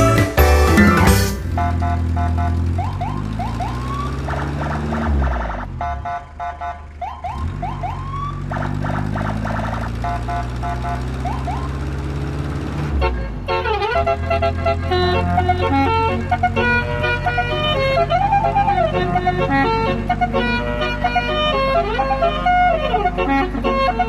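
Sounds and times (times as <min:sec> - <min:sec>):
vehicle engine hum: 0:00.0 - 0:24.0
electronic alarm siren beeping: 0:00.8 - 0:12.1.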